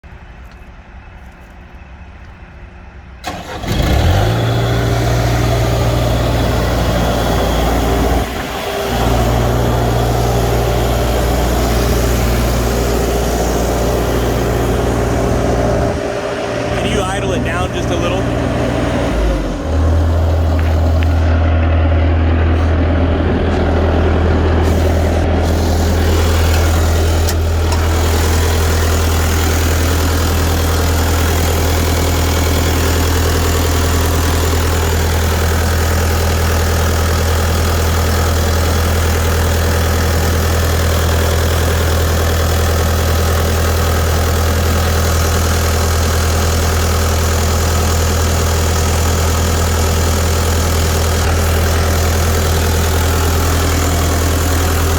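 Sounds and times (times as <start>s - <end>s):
diesel engine running steadily: 0.0s - 54.9s.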